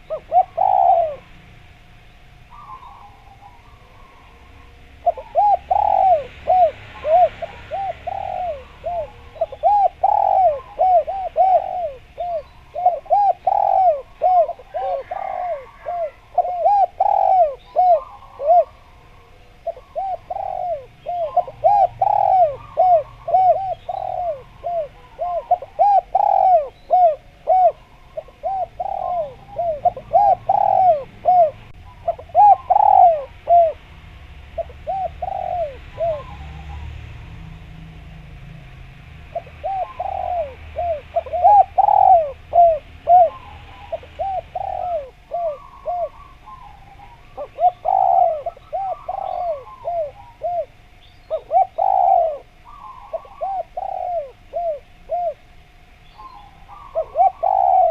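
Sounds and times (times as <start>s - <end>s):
dove cooing: 0.0s - 37.5s, 39.2s - 57.9s
faint high bird chirps: 2.1s - 31.0s, 56.0s - 57.9s.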